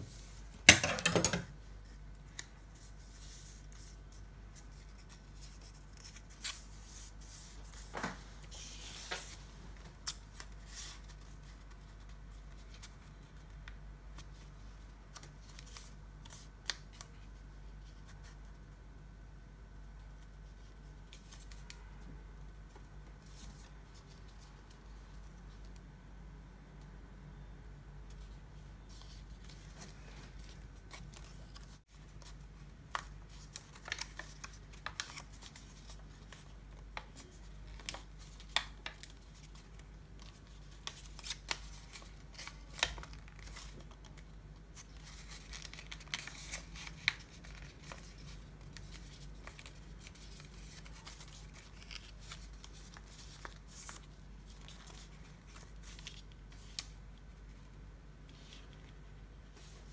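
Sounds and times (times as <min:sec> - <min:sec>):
paper being folded and creased: 0:01.8 - 0:18.5, 0:28.1 - 0:57.7, 0:58.3 - 0:59.9.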